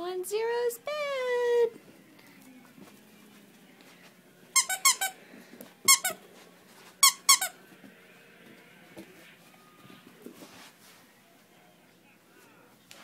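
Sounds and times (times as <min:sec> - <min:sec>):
squeaky dog toy squeaks: 0:04.6 - 0:05.2, 0:05.9 - 0:06.2, 0:07.0 - 0:07.6.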